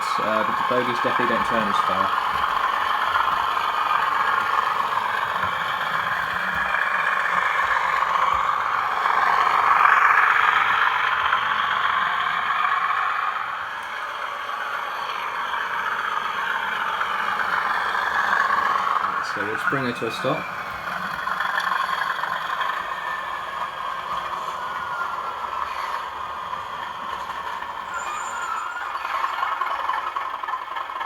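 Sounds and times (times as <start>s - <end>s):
diesel engine sound from speaker: 0.0s - 31.0s
model train running noise: 0.0s - 31.0s.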